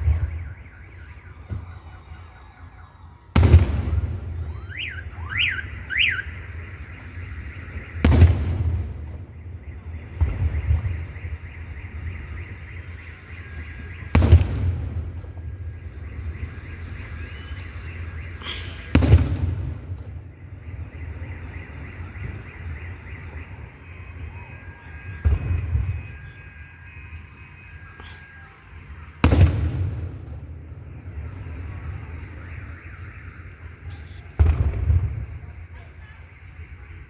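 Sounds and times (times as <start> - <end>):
firework crackle: 0.0 - 37.0
fireworks booming: 0.0 - 37.0
sharp firework crack: 5.8 - 9.2, 15.9 - 20.1.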